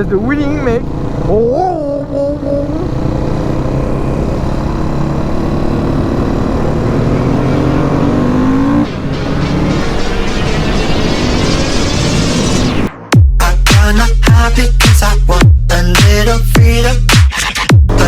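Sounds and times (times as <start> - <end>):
motorcycle engine revving: 0.0 - 12.8.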